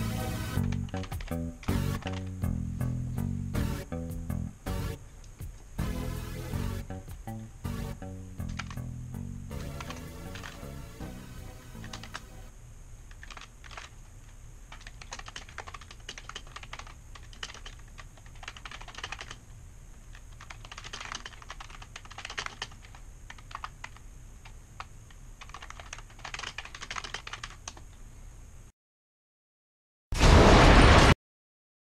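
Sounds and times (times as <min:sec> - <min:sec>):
keyboard typing clicks: 0:00.5 - 0:02.4, 0:08.4 - 0:08.9, 0:09.5 - 0:12.5, 0:13.1 - 0:14.0, 0:14.7 - 0:19.4, 0:20.1 - 0:27.8.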